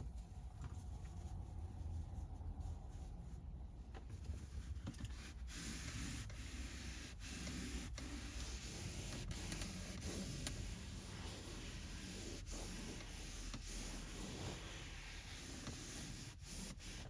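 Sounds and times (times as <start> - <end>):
cloth wiping surface: 0.0 - 17.0.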